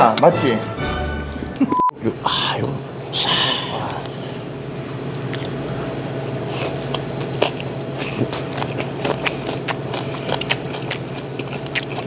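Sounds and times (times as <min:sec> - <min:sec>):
steady low hum: 0:00.0 - 0:12.0
chewing with wet mouth clicks: 0:05.1 - 0:05.6, 0:06.2 - 0:12.0.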